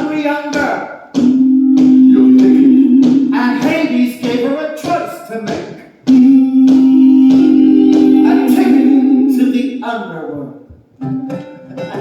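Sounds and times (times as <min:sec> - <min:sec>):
singer holding long note: 0:01.2 - 0:03.9, 0:06.1 - 0:09.8
strummed guitar chords: 0:06.1 - 0:09.6, 0:11.0 - 0:12.0.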